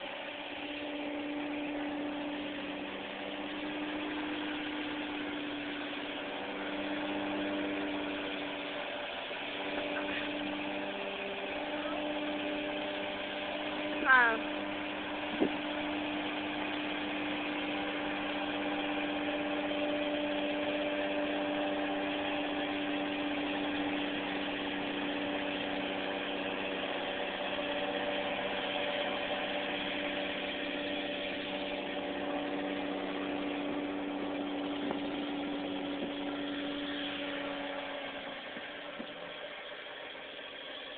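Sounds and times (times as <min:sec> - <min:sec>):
road noise: 0:00.0 - 0:40.9
vehicle engine running: 0:00.0 - 0:40.9.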